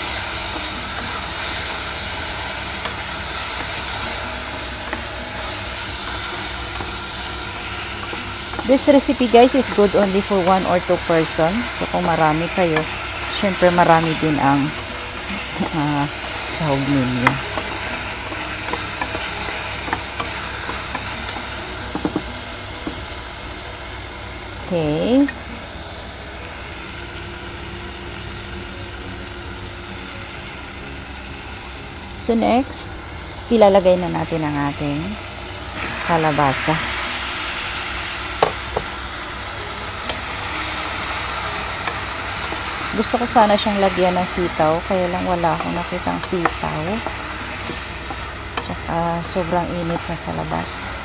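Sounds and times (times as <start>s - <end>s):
shrimp sizzling in a pot: 0.0s - 51.0s
wooden spatula stirring: 11.7s - 22.3s
wooden spoon scraping and tapping pot: 12.8s - 23.1s.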